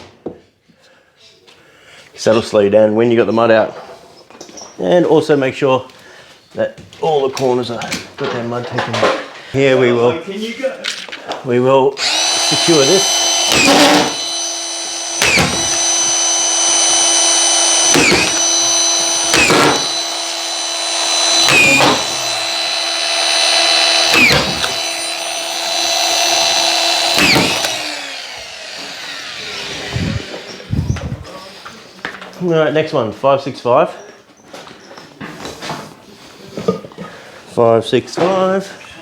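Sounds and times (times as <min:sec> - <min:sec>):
screws cracking into plasterboard: 0:12.0 - 0:28.0
power screwdriver whine: 0:12.0 - 0:31.2.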